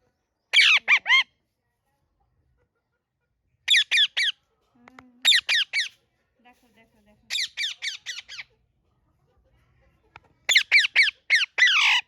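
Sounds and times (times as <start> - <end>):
parrot screeching: 0.6 - 1.3, 3.7 - 4.4, 5.3 - 5.9, 7.3 - 8.5, 10.5 - 12.0.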